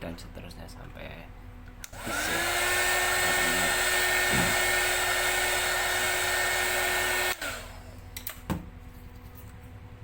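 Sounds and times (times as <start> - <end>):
hot air gun whining: 1.9 - 8.0.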